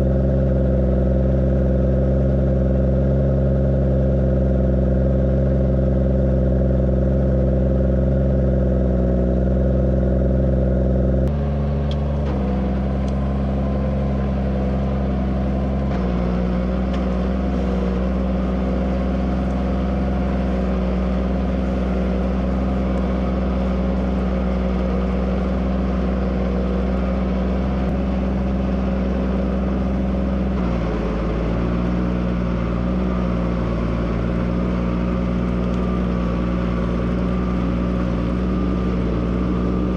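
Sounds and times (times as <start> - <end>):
tractor engine under load: 9.8 - 39.9.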